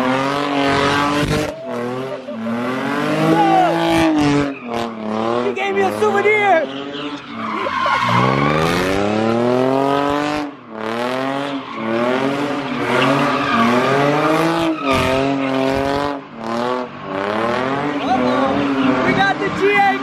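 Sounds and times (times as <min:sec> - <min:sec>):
car engine revving hard: 0:00.0 - 0:20.0
tyres squealing: 0:00.8 - 0:09.0.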